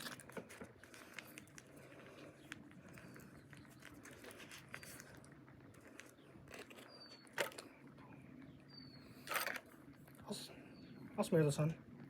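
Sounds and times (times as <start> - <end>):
food packaging crinkling: 0.0 - 7.9.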